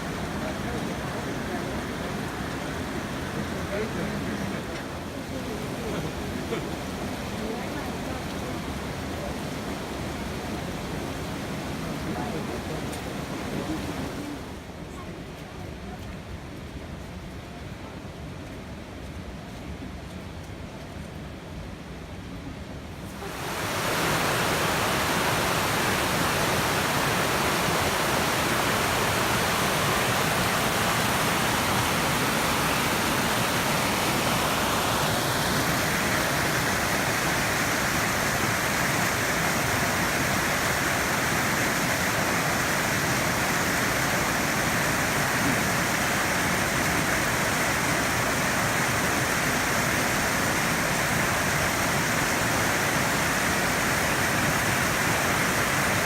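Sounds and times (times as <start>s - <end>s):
rushing flowing water: 0.0s - 18.4s, 22.1s - 56.0s.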